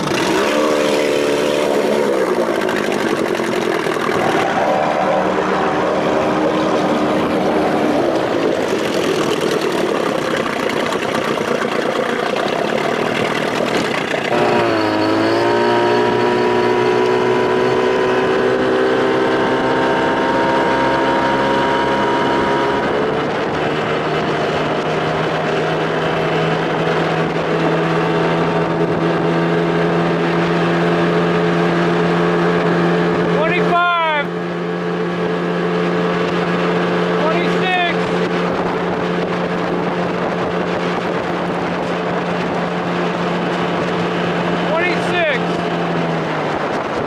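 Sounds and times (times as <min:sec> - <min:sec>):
outboard motor running: 0:00.0 - 0:47.0
rush of wind and water: 0:00.0 - 0:47.0.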